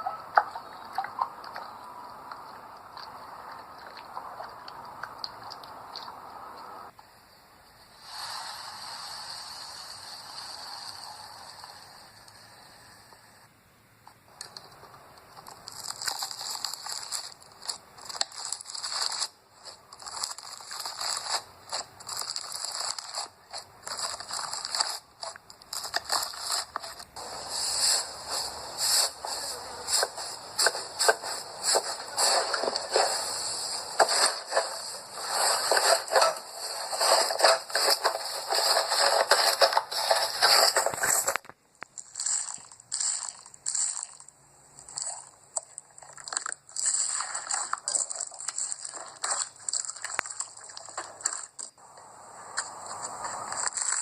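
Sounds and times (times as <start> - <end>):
slime crackling and popping: 15.3 - 27.2, 28.1 - 51.8, 52.5 - 54.0.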